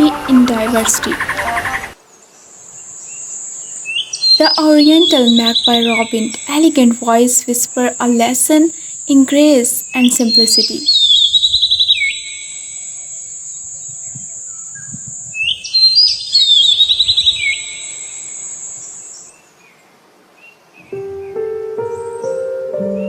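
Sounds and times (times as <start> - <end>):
steady high-pitched tone: 0.0 - 2.0
bird trilling and whistling: 15.4 - 18.0.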